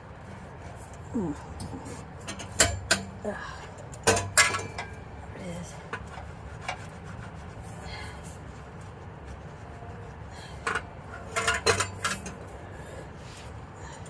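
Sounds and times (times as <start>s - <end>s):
metal parts clanking: 10.7s - 12.4s.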